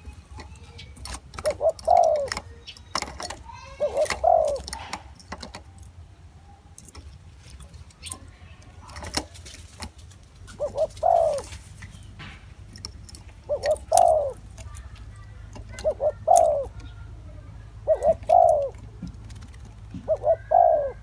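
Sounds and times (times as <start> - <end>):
dove cooing: 0.0 - 5.9, 6.8 - 21.0
sharp clicks: 6.8 - 17.0.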